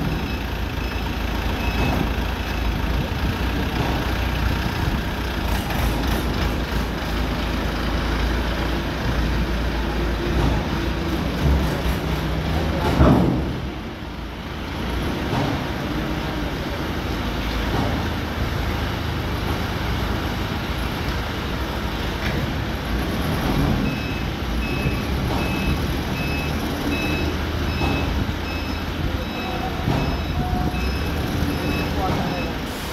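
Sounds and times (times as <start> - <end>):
tractor engine running: 0.0 - 32.9
repeating electronic beep: 23.9 - 32.6.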